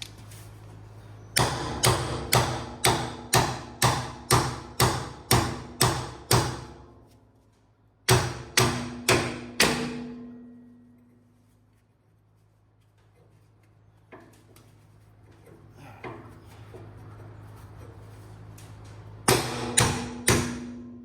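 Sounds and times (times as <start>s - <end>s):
hammer striking metal: 1.4s - 6.8s, 8.1s - 11.0s, 19.2s - 21.0s.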